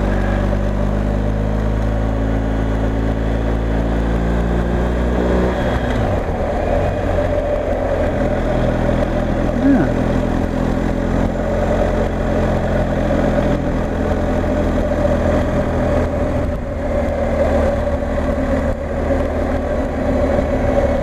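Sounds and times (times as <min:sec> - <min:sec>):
motorcycle engine cruising: 0:00.0 - 0:21.0
wind and road rush: 0:00.0 - 0:21.0.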